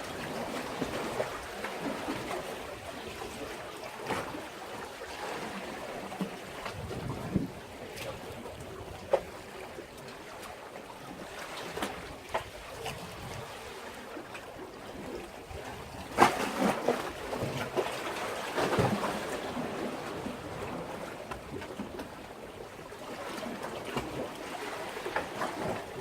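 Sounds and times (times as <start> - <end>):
sea waves splashing against breakwater: 0.0 - 26.0.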